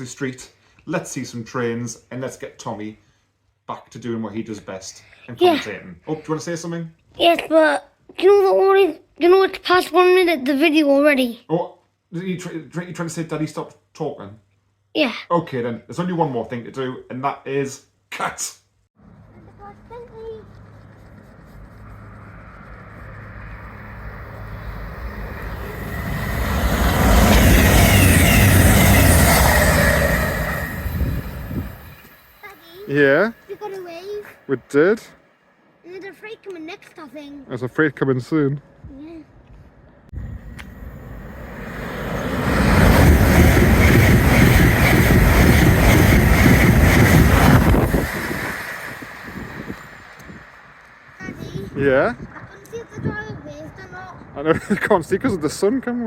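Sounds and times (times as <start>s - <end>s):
train passing with rumble: 19.0s - 35.8s, 40.1s - 55.6s.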